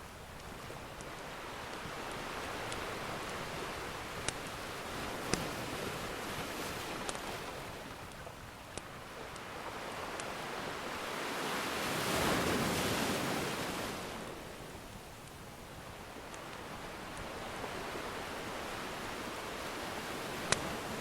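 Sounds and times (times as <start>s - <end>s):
wood fire crackling: 0.0s - 11.1s
ocean wave washing: 0.0s - 15.0s, 15.6s - 21.0s.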